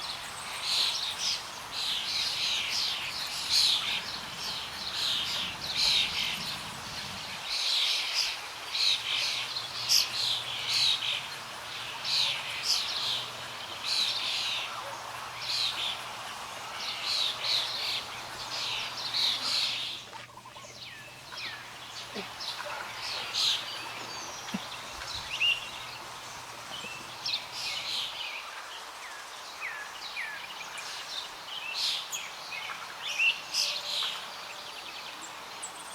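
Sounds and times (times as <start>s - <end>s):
bird chirping: 9.2s - 28.2s.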